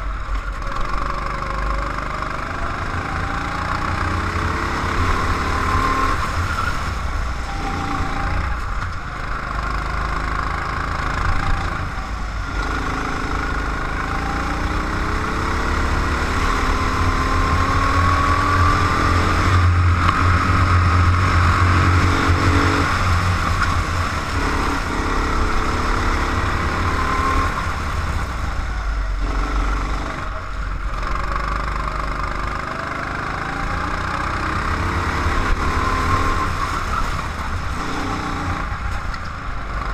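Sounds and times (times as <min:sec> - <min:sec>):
go-kart engine: 0:00.0 - 0:39.9.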